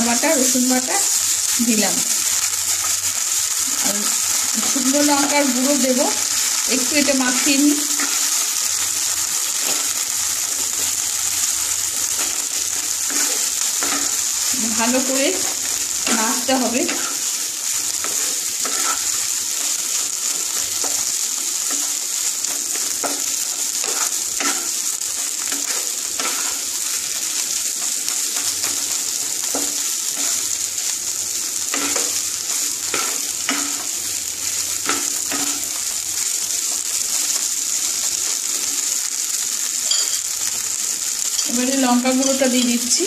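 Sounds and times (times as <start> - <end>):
food sizzling in oil: 0.0 - 43.0
spatula knocking and scraping pan: 13.0 - 14.3, 18.0 - 19.2, 21.7 - 26.7, 31.7 - 32.2.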